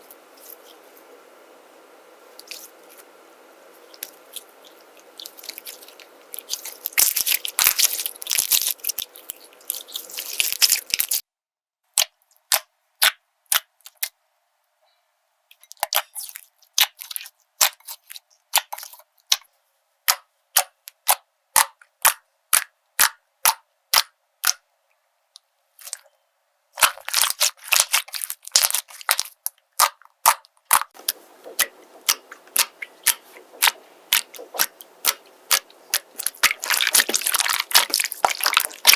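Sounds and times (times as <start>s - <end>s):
slime crackling and popping: 3.8s - 11.2s, 26.8s - 38.9s.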